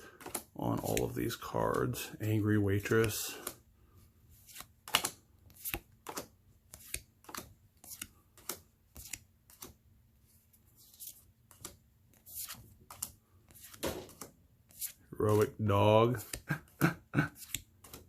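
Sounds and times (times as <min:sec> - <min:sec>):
cards slapping down: 0:04.5 - 0:09.8, 0:12.9 - 0:14.4.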